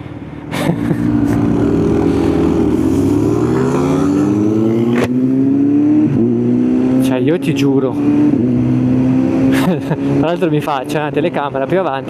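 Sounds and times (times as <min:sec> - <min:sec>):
motorcycle engine pulling away: 0:00.9 - 0:05.6.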